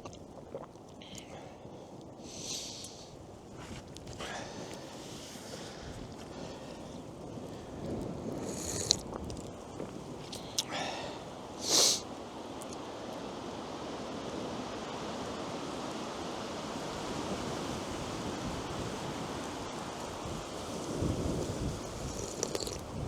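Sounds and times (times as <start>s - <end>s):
brief loud hiss: 11.6s - 12.0s.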